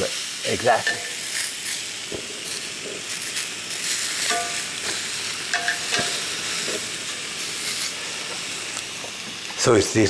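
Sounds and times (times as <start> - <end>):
meat and vegetables sizzling: 0.0 - 10.0
metal tongs clicking on pan: 0.8 - 1.2, 4.2 - 6.3.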